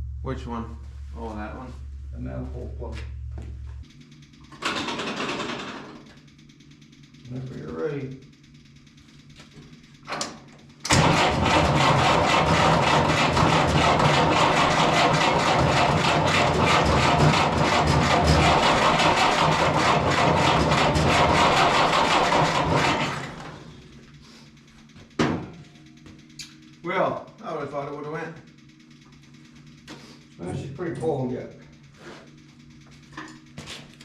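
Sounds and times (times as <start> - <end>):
starter cranking diesel engine: 4.3 - 8.9, 10.2 - 24.8.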